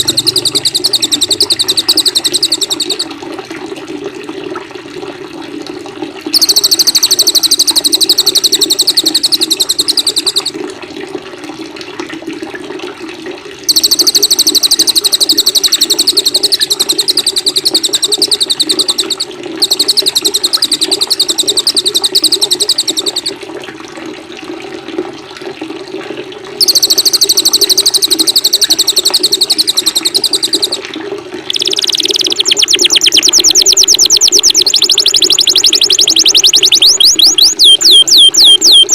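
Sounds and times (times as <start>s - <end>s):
lower bird song: 0.0s - 3.0s, 31.5s - 38.9s
songbird high rapid trills: 0.0s - 3.1s, 6.4s - 10.5s, 13.7s - 23.3s, 26.6s - 30.8s, 31.5s - 38.9s
running water: 0.0s - 38.9s.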